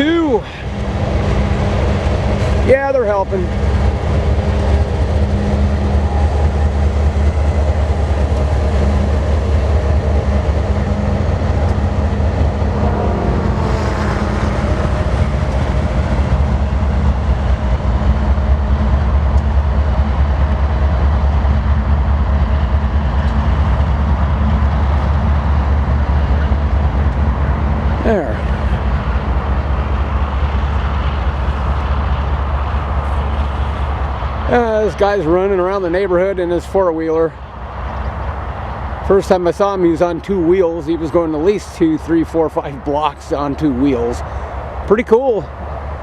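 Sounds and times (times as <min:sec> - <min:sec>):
diesel locomotive rumble: 0:00.0 - 0:46.0.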